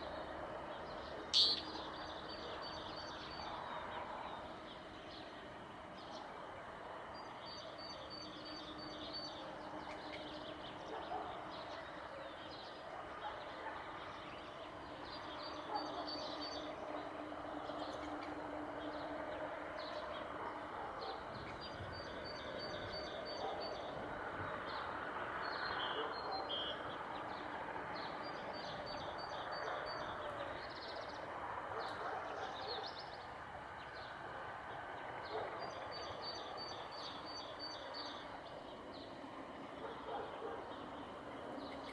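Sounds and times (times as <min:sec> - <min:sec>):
songbird singing high notes: 0:01.4 - 0:01.9.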